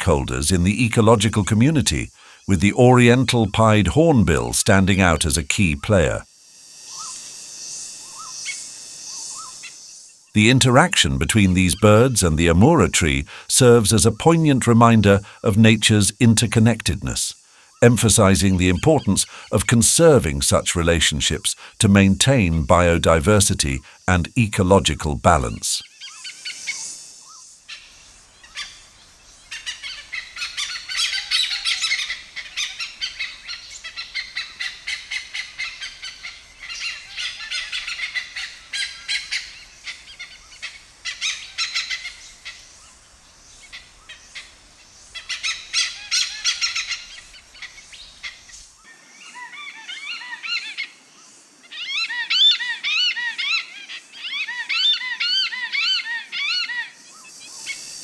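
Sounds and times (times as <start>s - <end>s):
birds whistling arching notes: 6.9s - 10.1s, 25.5s - 51.0s, 51.7s - 58.0s
rapid high bird chirping: 25.4s - 48.9s.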